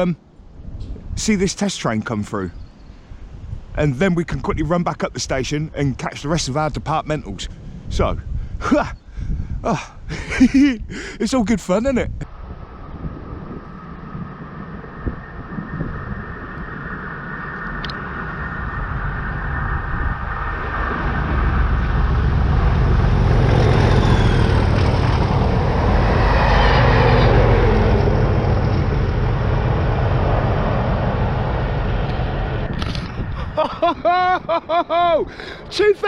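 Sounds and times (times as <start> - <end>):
wheels rumbling on rail: 12.3 - 33.9
diesel locomotive engine: 12.3 - 34.3.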